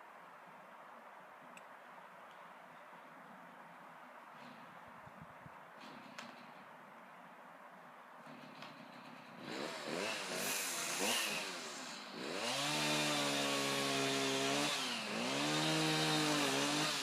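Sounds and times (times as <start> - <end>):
chainsaw cutting into tree: 8.3 - 17.0.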